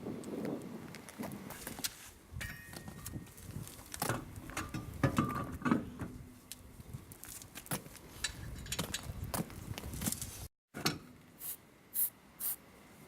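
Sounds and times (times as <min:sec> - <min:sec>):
tools clinking and knocking: 0:02.4 - 0:03.2, 0:04.1 - 0:05.9, 0:08.2 - 0:09.1.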